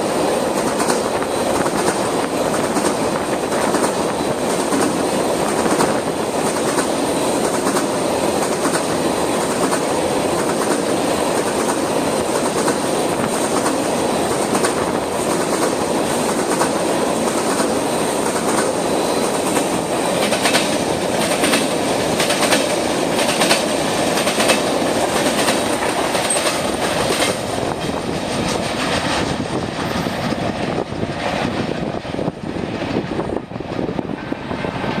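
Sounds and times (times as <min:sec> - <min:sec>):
freight train wheels rumbling: 0:00.0 - 0:35.0
wheels clicking over rail joints: 0:00.5 - 0:34.2.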